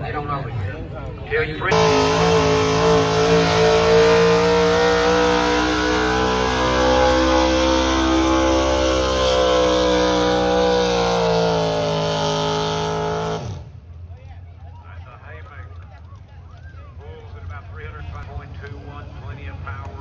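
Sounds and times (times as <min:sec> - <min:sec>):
truck engine revving under load: 0:01.7 - 0:13.8.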